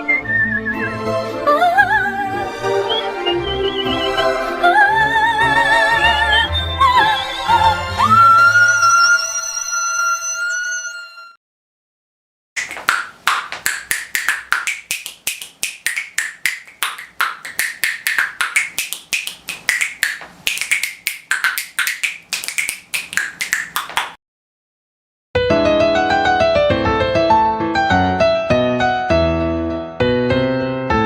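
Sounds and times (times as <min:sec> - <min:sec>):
rapid percussion taps: 0:12.6 - 0:24.2
piano notes: 0:25.4 - 0:31.0.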